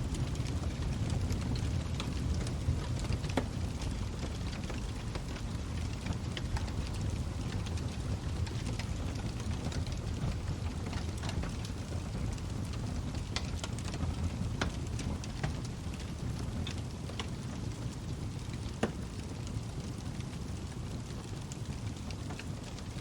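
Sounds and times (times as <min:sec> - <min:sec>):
fire flames rumbling: 0:00.0 - 0:23.0
logs crackling and popping: 0:00.0 - 0:23.0.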